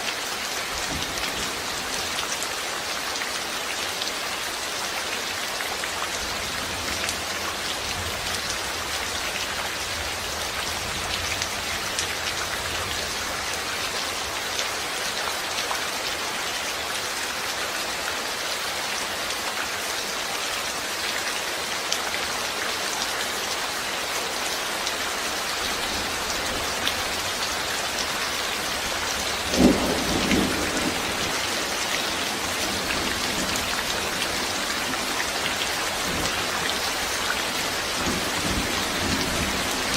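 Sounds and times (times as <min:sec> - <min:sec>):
steady rain falling: 0:00.0 - 0:39.9
low rumble of thunder: 0:29.3 - 0:31.4.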